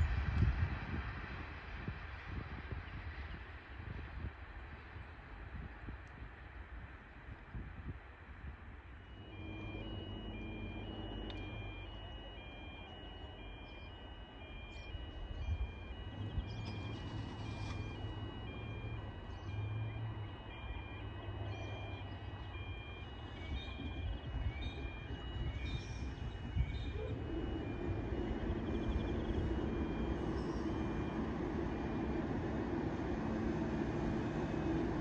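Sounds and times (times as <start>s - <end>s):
diesel railcar engine: 0.0s - 35.0s
two-pitch electronic warning beeps: 9.0s - 35.0s.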